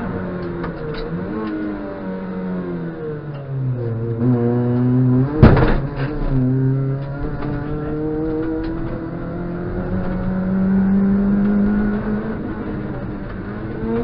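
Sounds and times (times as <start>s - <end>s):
rally car engine: 0.0s - 14.0s
loud sharp thump: 5.3s - 6.1s.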